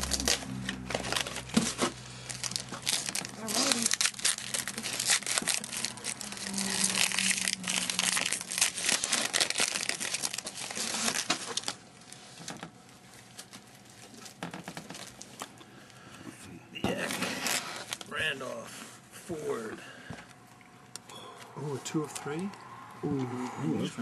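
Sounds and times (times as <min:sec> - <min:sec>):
plastic wrapper crinkling and tearing: 0:00.0 - 0:15.6, 0:17.0 - 0:18.1.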